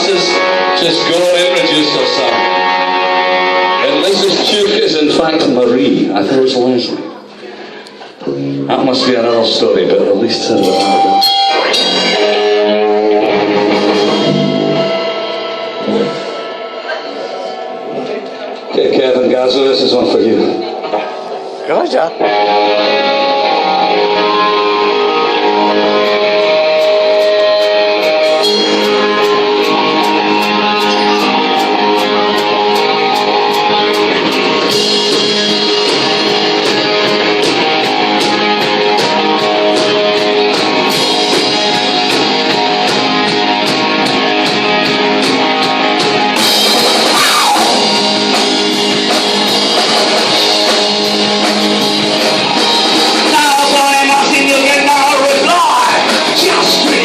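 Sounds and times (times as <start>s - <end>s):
guitar notes: 0.0s - 4.8s, 7.0s - 18.8s, 20.4s - 57.0s
live rock band playing: 0.0s - 57.0s
steady drum beat: 25.6s - 57.0s.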